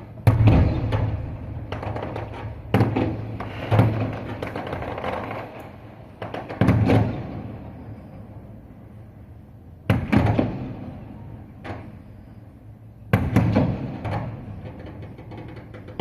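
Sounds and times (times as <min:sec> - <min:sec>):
small firework cracks: 0:00.0 - 0:07.6, 0:09.9 - 0:12.0
fireworks booming: 0:00.0 - 0:16.0.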